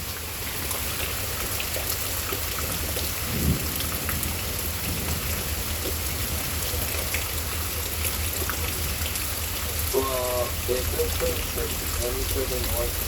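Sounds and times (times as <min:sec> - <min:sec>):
rain falling: 0:00.0 - 0:13.0
distant thunder rumbling: 0:02.7 - 0:06.9.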